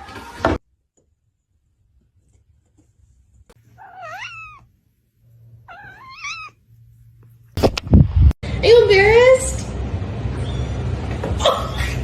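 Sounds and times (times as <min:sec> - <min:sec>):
cat meowing: 0:03.7 - 0:04.7, 0:05.6 - 0:06.6.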